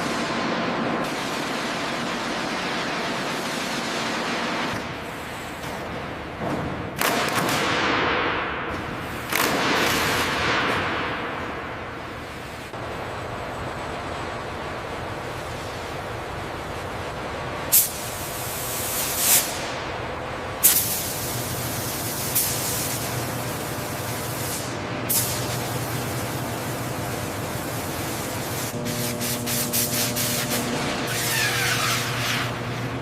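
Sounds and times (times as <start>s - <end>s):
steady mechanical hum: 0.0s - 33.0s
spraying hiss: 17.7s - 19.7s, 20.6s - 32.5s.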